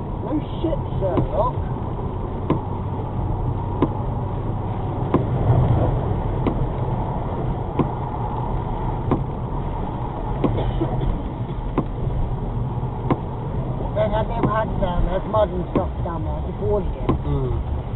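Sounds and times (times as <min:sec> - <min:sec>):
car engine and tyre rumble: 0:00.0 - 0:17.9
windscreen wipers knocking: 0:01.0 - 0:12.2, 0:12.9 - 0:13.6, 0:14.2 - 0:16.1, 0:16.9 - 0:17.4.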